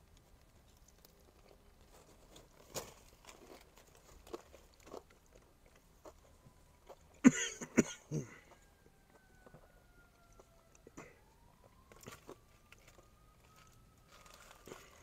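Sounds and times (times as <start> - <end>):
crunching fried chicken: 0.0 - 7.2, 8.3 - 15.0.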